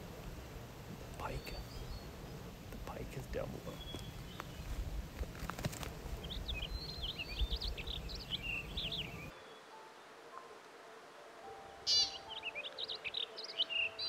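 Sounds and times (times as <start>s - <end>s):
wind rumbling on microphone: 0.0s - 9.3s
songbird twittering: 1.1s - 9.8s, 11.9s - 14.0s.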